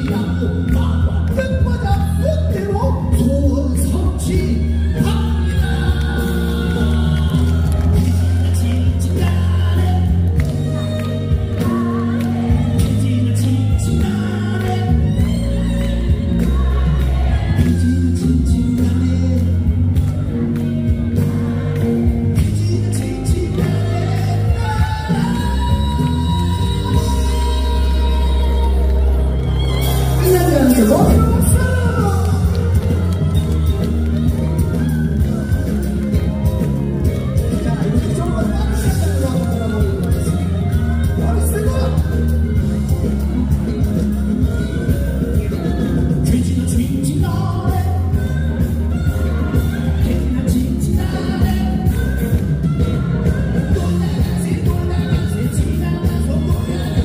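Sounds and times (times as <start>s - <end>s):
live band music through pa: 0.0s - 57.0s
person singing: 0.0s - 57.0s.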